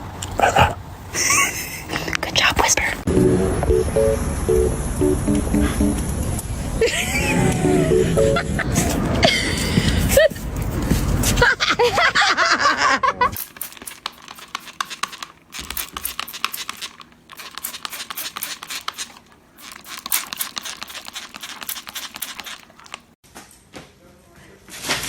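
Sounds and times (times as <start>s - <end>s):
person speaking: 2.8s - 11.2s
crinkling and crackling: 13.4s - 23.2s.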